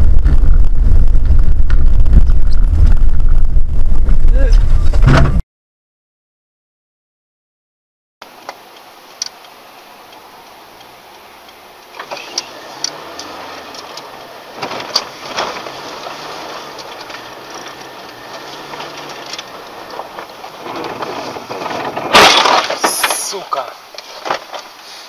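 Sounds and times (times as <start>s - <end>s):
car engine hum: 8.2s - 25.0s
road noise: 8.2s - 25.0s
sharp clicks and knocks: 11.8s - 23.2s.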